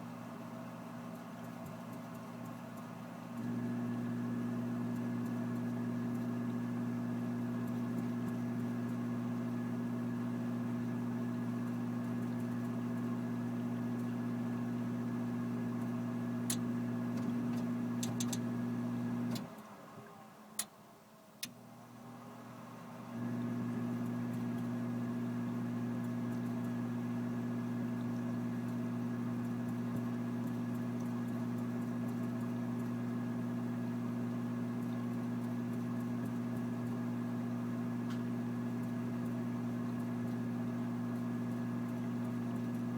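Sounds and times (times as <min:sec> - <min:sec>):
furnace electric hum: 0:00.0 - 0:42.9
sharp furnace clicks: 0:16.4 - 0:18.5.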